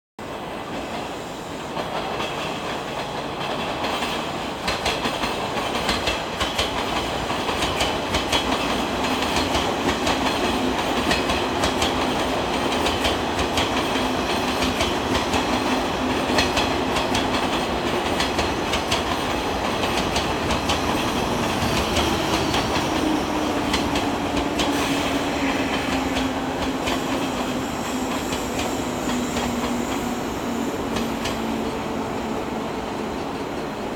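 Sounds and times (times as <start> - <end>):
train wheels clacking over rail joints: 0.7 - 32.1.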